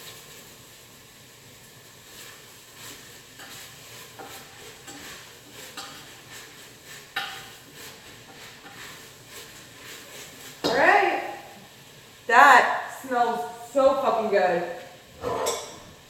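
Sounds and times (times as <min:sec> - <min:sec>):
metal utensil scraping cooking pot: 0:02.1 - 0:10.9, 0:15.1 - 0:16.0.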